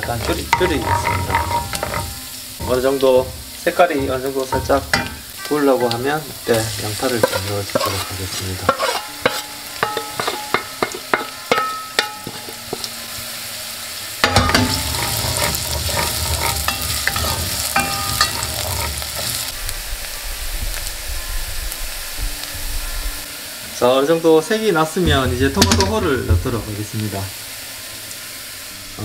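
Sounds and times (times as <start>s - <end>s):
wooden spatula knocking on bowl: 0.0s - 6.0s
onion and garlic frying in oil: 0.0s - 29.0s.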